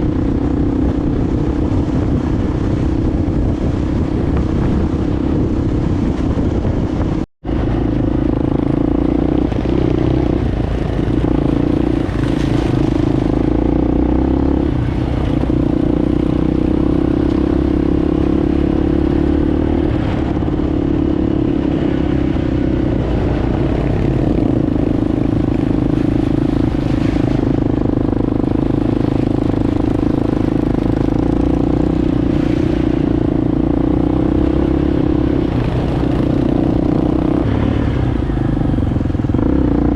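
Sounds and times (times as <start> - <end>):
clatter over rough ground: 0.0 - 21.0
motorcycle engine running: 0.0 - 39.9.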